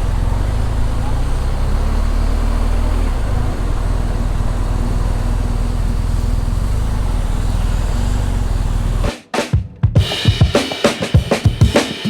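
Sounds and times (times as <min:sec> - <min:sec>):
road traffic noise: 0:00.0 - 0:09.1
vehicle engine idling: 0:00.0 - 0:09.1.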